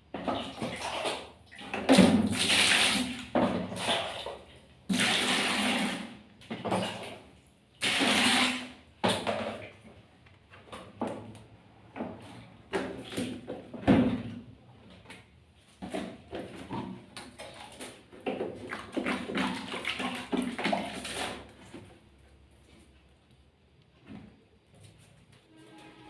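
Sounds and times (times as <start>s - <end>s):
water splashing and pouring: 0.2s - 9.7s, 17.2s - 21.8s.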